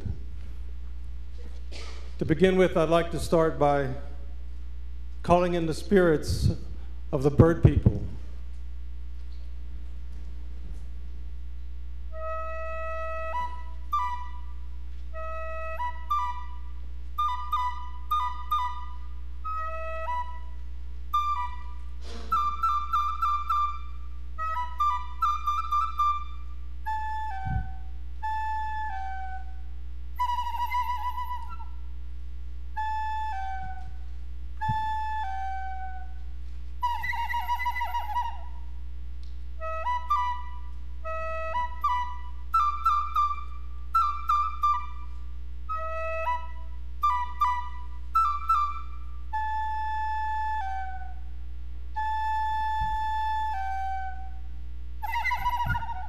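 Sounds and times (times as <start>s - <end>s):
steady low hum: 0.0s - 56.0s
whistle-like wind instrument bird calls: 12.2s - 31.9s, 36.8s - 38.8s, 39.6s - 51.3s, 52.0s - 56.0s
whistle imitating bird calls: 17.2s - 29.6s, 55.0s - 56.0s.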